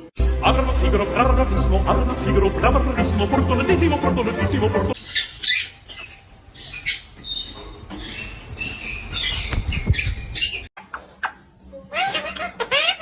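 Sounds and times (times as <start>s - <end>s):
nestling birds peeping: 5.0s - 13.0s.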